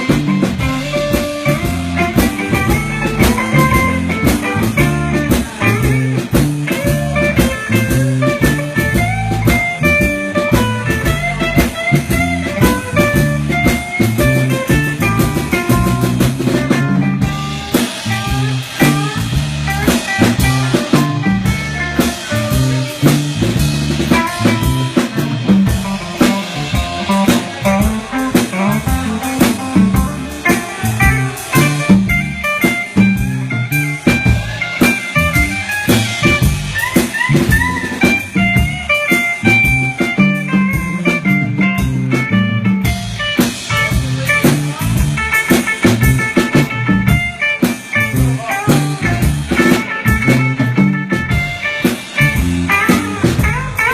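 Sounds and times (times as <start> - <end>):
bass guitar: 0.0 - 53.9
drum kit: 0.0 - 53.9
electric guitar solo: 0.0 - 53.9.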